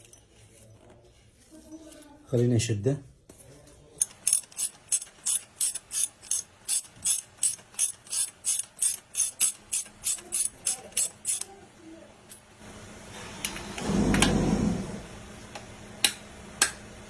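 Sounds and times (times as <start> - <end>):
ratchet wrench clicking: 4.0 - 11.5.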